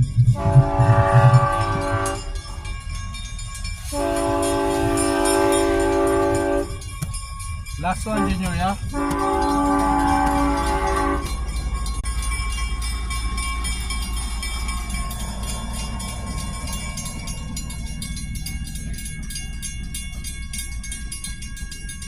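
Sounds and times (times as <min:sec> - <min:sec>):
train rumbling: 0:00.0 - 0:22.0
train horn blast: 0:00.3 - 0:02.4, 0:03.8 - 0:06.8, 0:08.0 - 0:11.5.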